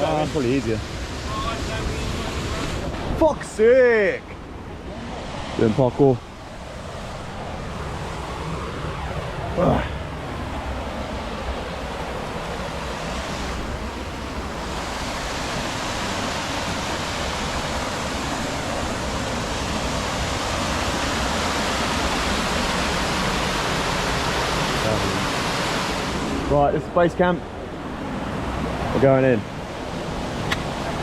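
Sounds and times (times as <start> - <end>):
waterfall rushing: 9.5 - 26.6.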